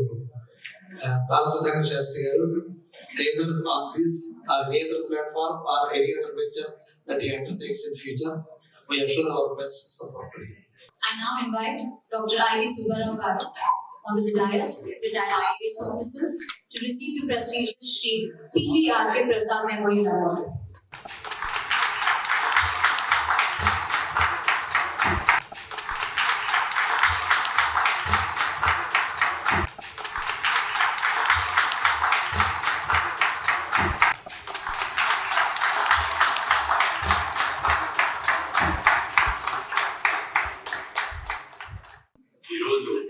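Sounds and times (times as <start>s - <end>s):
audience applauding: 21.0s - 42.1s.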